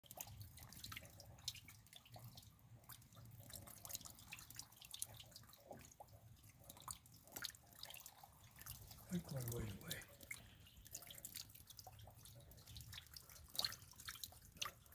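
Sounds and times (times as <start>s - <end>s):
rain drops ticking: 8.0s - 13.1s.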